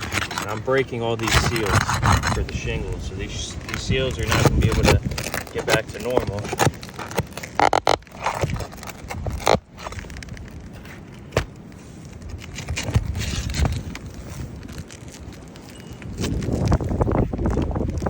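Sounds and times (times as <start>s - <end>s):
low rumble of wind: 0.0s - 18.0s
shingles cracking and scraping: 0.0s - 18.0s.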